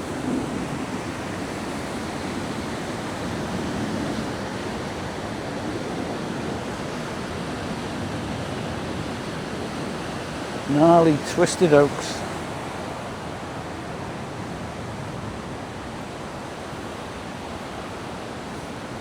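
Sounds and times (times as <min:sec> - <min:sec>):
waterfall rushing: 0:10.5 - 0:12.9.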